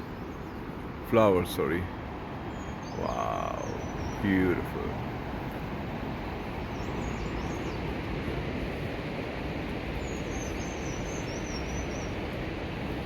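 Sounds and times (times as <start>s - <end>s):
rushing outdoor noise: 0.0s - 13.0s
small bird twittering: 2.5s - 4.6s.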